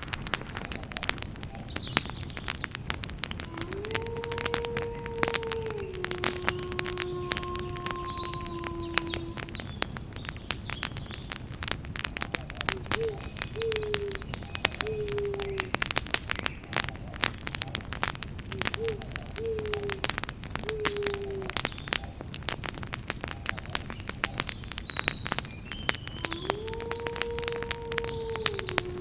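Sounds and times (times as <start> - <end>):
campfire crackling: 0.0 - 29.0
bird hooting: 3.4 - 9.6, 12.7 - 15.7, 18.6 - 21.6, 26.0 - 29.0.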